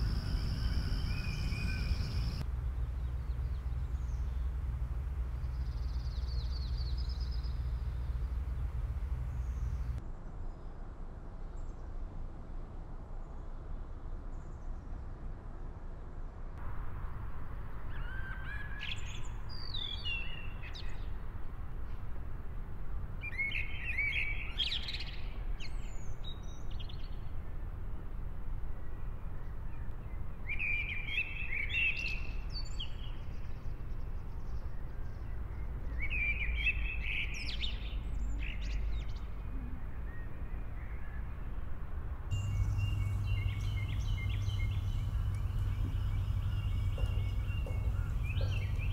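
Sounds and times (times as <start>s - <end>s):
songbird warbling: 0.0s - 2.4s, 42.3s - 48.9s
low background rumble: 0.0s - 10.0s, 41.9s - 48.9s.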